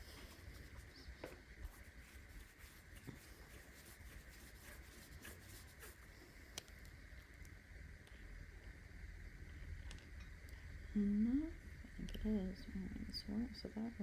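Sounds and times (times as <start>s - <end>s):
low steady hum: 0.0s - 14.0s
fingers rubbing clay: 1.6s - 6.1s.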